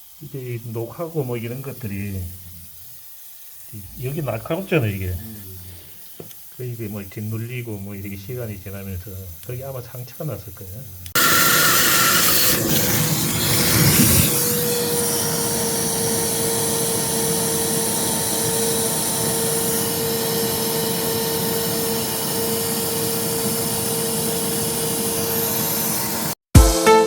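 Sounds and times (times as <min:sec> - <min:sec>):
electric motor whining: 0:11.2 - 0:26.4.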